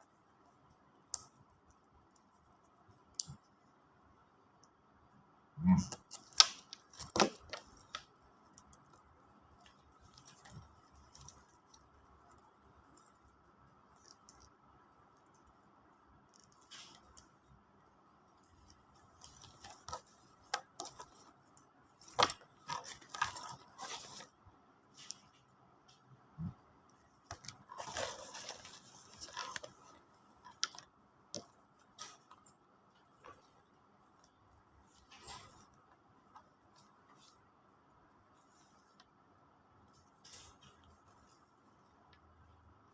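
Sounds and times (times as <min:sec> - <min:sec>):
crinkly packaging rustling: 0:06.1 - 0:14.5, 0:18.3 - 0:25.5, 0:26.9 - 0:37.4
bag clicks and rustles: 0:27.3 - 0:30.9.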